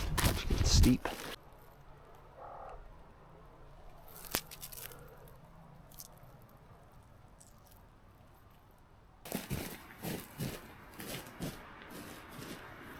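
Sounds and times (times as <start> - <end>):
footsteps on forest floor: 0.0 - 1.4, 9.3 - 12.9.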